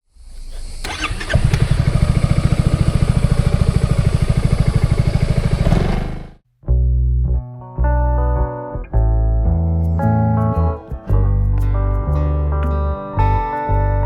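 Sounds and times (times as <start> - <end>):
motorcycle engine starting and idling: 0.4 - 6.4.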